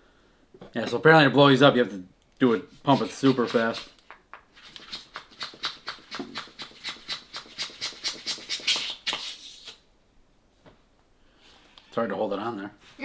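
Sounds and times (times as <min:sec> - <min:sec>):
hand pump hissing puffs: 0:02.7 - 0:04.0.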